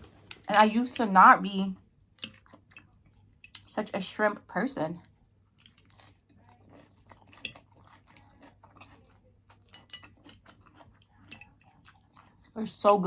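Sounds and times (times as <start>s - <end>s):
crunchy chewing: 1.8s - 3.7s, 5.0s - 12.8s.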